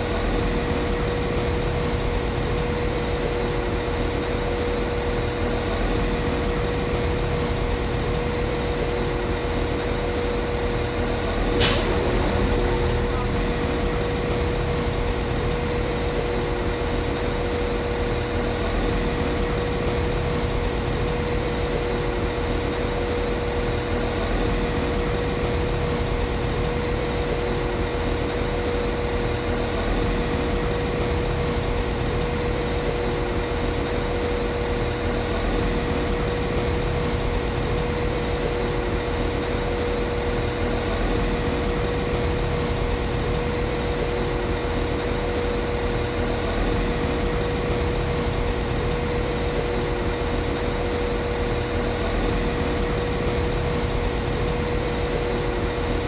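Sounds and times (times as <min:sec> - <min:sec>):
train diesel engine idling: 0:10.7 - 0:17.3.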